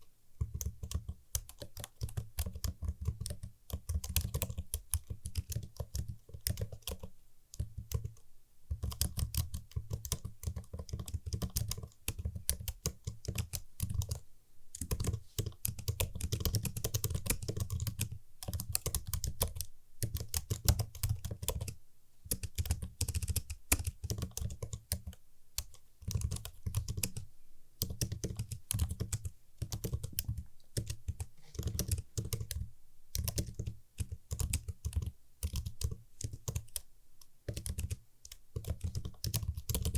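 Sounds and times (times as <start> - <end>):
computer keyboard typing: 0.4 - 39.9.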